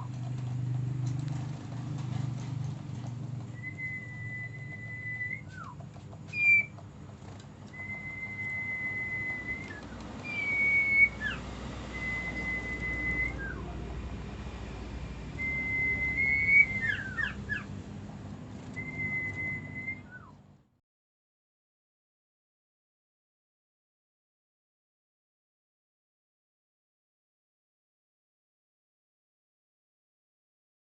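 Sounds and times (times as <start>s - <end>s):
bird chirps: 3.5s - 6.8s, 7.7s - 13.8s, 15.4s - 17.8s, 18.8s - 20.4s
songbird whistling: 3.5s - 6.8s, 7.7s - 13.8s, 15.3s - 17.8s, 18.7s - 20.4s.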